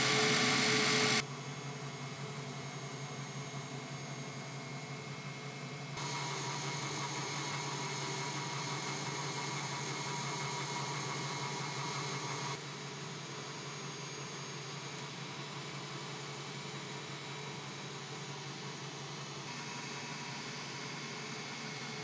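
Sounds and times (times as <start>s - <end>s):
machine whirring: 0.0s - 1.2s, 6.0s - 12.6s
steady mechanical hum: 0.0s - 22.0s.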